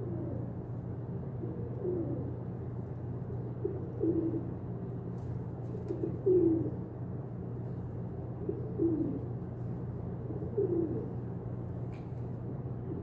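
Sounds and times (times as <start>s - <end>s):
pigeons cooing: 0.0s - 0.6s, 1.3s - 2.8s, 3.5s - 4.7s, 5.6s - 7.0s, 8.3s - 11.4s
steady low hum: 0.0s - 13.0s.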